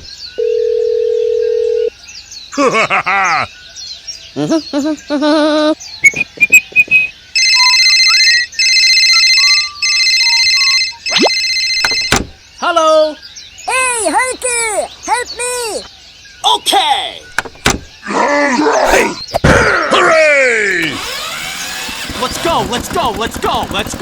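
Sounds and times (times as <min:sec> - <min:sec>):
squeaky voice-like sounds: 0:07.4 - 0:11.4
electronic ringtone: 0:07.4 - 0:12.2.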